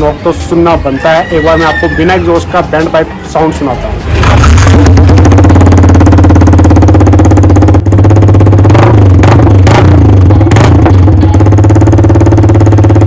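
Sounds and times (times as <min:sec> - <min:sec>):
motorcycle engine revving loudly: 0:04.0 - 0:13.0.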